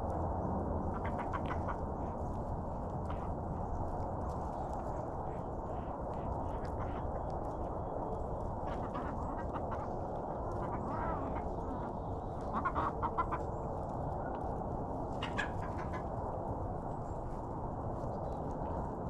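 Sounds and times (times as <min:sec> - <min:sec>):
low background noise: 0:00.0 - 0:19.0
hens clucking: 0:00.9 - 0:01.8, 0:05.3 - 0:07.6, 0:08.7 - 0:13.9, 0:15.2 - 0:16.1.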